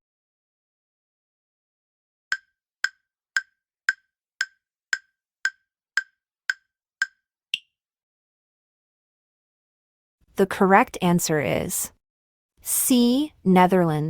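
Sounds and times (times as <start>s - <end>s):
short woody timer ticks: 2.3s - 7.7s.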